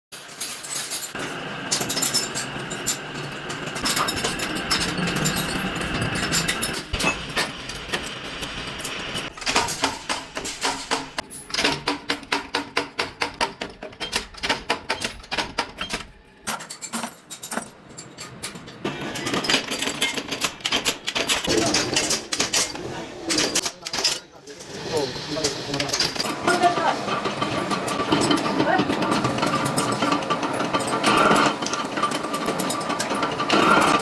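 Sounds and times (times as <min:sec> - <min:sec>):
machinery whine: 0:01.2 - 0:09.4, 0:24.6 - 0:34.0.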